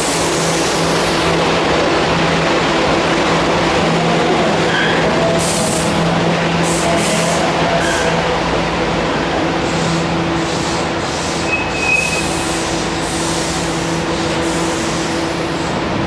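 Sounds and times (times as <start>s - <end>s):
electric train rolling rumble: 0.0s - 16.0s
high-pitched train squeal: 4.6s - 5.8s, 9.7s - 15.7s.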